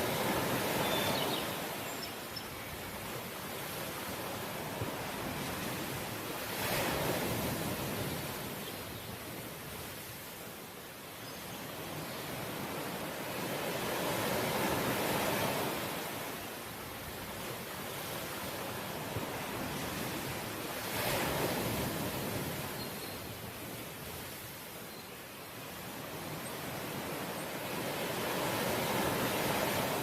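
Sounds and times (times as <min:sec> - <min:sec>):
sea waves washing in: 0:03.0 - 0:10.6, 0:12.4 - 0:22.8, 0:26.8 - 0:30.0.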